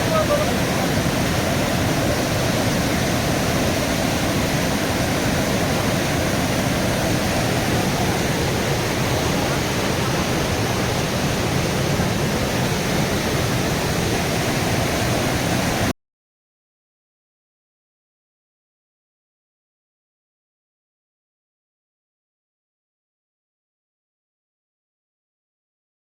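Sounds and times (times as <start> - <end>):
rushing water: 0.0 - 15.9.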